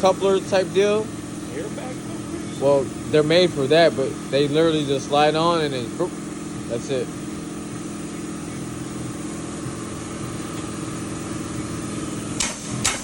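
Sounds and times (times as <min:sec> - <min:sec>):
mechanical hum: 0:00.0 - 0:13.0
sharp clacks: 0:12.4 - 0:13.0.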